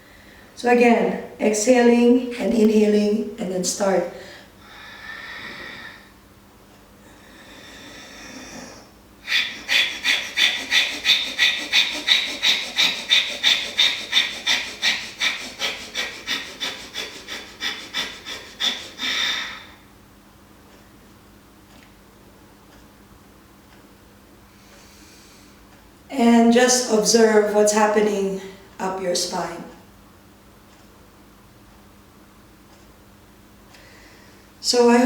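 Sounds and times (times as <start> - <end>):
person breathing sharply: 4.2 - 6.2, 7.1 - 19.9, 33.8 - 34.6.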